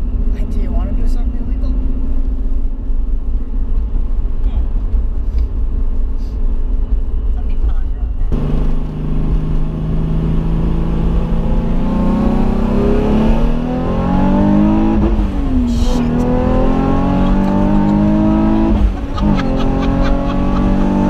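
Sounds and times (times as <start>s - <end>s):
car engine accelerating hard: 8.3s - 21.0s.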